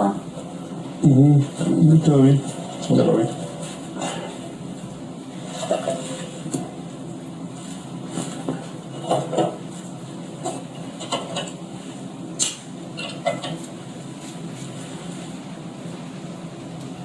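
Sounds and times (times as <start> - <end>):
objects knocking and clattering: 8.2 - 9.6.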